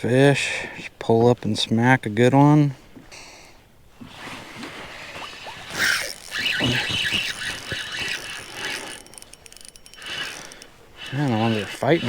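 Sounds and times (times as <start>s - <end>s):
fishing reel ratcheting whir: 5.0s - 12.0s.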